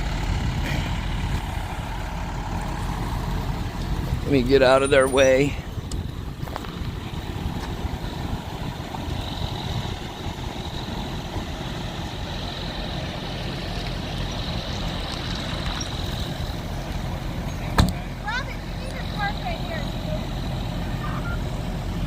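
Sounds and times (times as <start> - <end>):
engines idling: 0.0 - 22.0.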